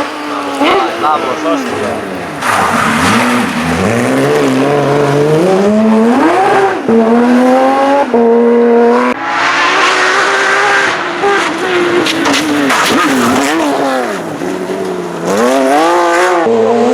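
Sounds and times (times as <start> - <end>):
tyres on gravel: 0.0 - 5.0
car engine accelerating: 0.0 - 16.9.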